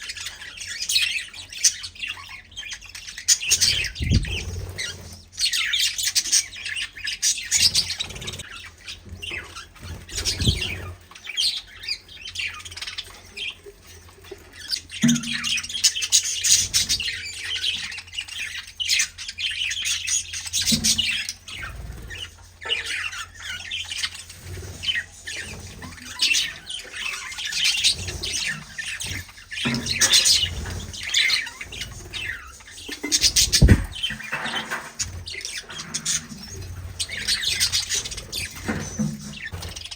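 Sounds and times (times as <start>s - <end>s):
birds chirping and squawking: 0.0s - 39.9s
low thumps: 33.3s - 34.3s.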